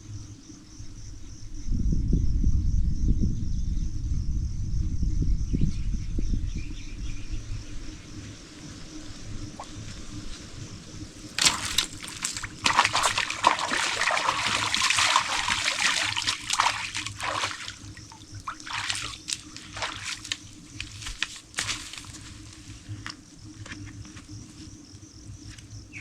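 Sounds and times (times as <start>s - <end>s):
water dripping: 11.2s - 23.2s
water splashing in a stream: 11.2s - 23.2s.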